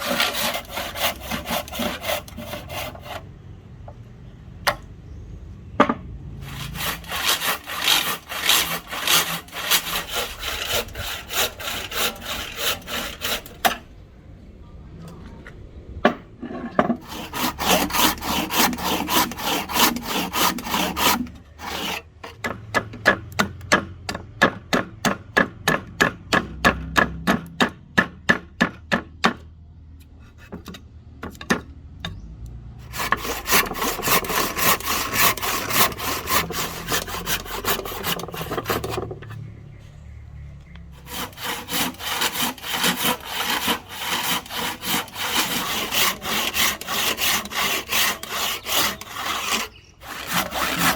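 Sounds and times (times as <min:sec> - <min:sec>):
hand tool stroking wood: 0:00.0 - 0:03.2, 0:06.4 - 0:13.8, 0:17.0 - 0:22.5, 0:32.8 - 0:39.5, 0:40.7 - 0:50.9.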